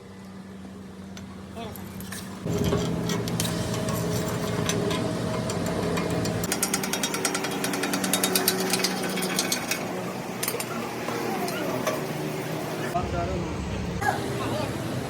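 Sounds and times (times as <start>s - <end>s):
steady machine hum: 0.0s - 15.0s
power tool hammering rapidly: 4.5s - 9.8s.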